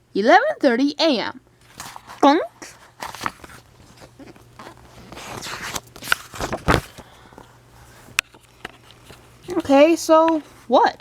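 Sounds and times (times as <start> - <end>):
book paper rustling: 1.6 - 10.7
book thump: 6.0 - 7.0.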